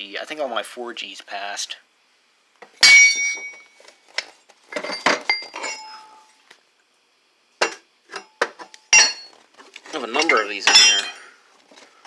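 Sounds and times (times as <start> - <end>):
metal pieces clinking: 4.7 - 6.2, 10.0 - 11.3.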